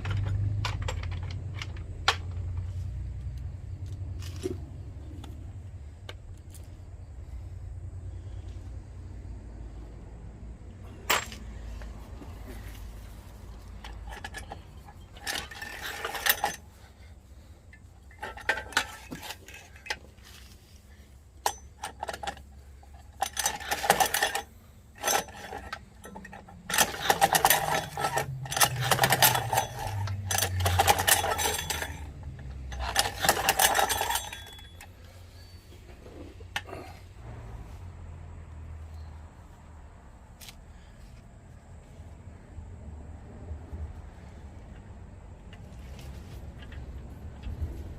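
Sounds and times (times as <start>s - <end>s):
metal tools clinking: 0.0s - 2.8s, 10.9s - 37.0s.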